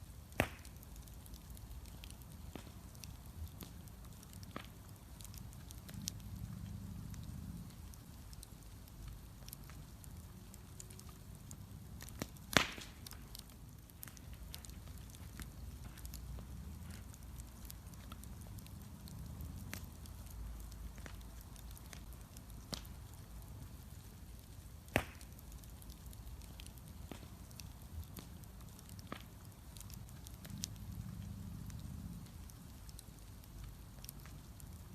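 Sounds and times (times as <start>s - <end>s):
bonfire crackling: 0.0s - 34.9s
sharp loud pops from fire: 0.3s - 1.4s, 12.0s - 15.1s, 24.8s - 26.0s.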